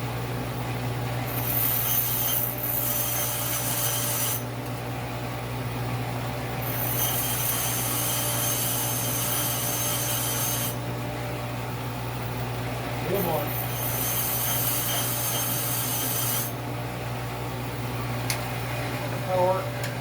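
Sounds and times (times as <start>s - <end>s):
bench grinder running: 1.2s - 4.5s, 6.6s - 10.9s, 12.8s - 16.6s.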